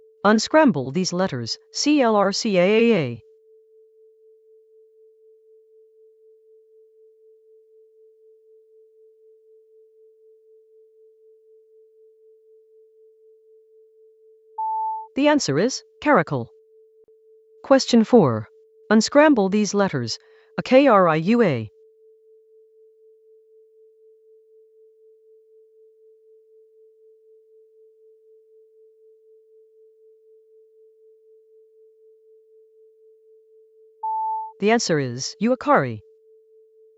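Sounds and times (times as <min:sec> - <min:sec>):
pulsing electronic sine tone: 0:03.3 - 0:15.1, 0:21.7 - 0:34.5.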